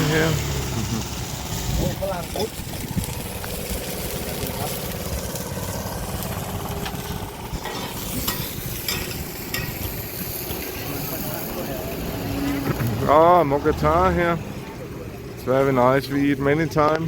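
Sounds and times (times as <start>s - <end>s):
food sizzling in frying pan: 0.0s - 13.2s
metal spatula scraping pan: 7.6s - 9.9s.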